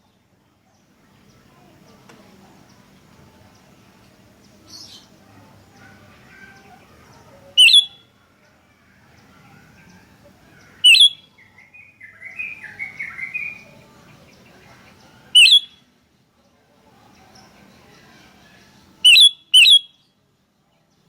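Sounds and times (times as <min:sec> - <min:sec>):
bird sharp call notes: 0:07.6 - 0:08.0, 0:10.8 - 0:11.3, 0:15.4 - 0:15.8, 0:19.1 - 0:20.0
bird soft chattering: 0:07.6 - 0:08.0, 0:10.8 - 0:11.2.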